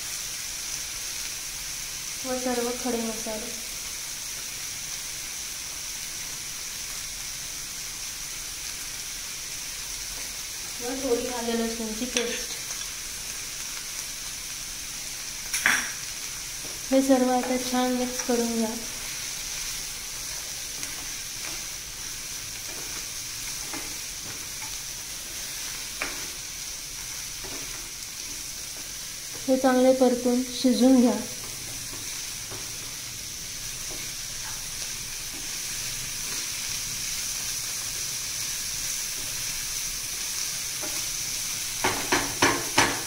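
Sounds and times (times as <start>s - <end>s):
onions and tomatoes sizzling in pan: 0.0s - 43.0s
spoon scraping and tapping a pan: 12.1s - 12.9s, 15.5s - 16.0s, 41.8s - 43.0s.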